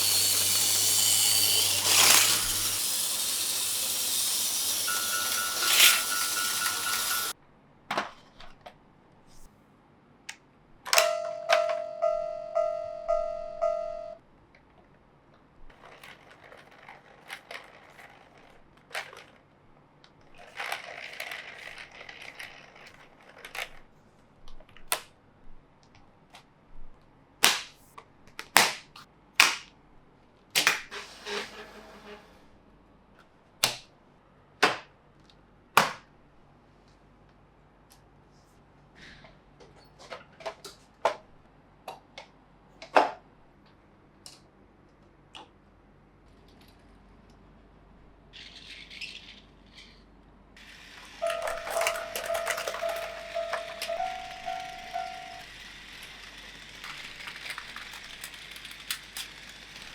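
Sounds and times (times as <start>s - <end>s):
plastic toy parts clicking together: 0.0s - 7.3s, 15.7s - 23.8s, 48.4s - 50.0s, 51.0s - 59.9s
toy pulsing electronic beep: 0.0s - 7.3s, 51.1s - 57.1s.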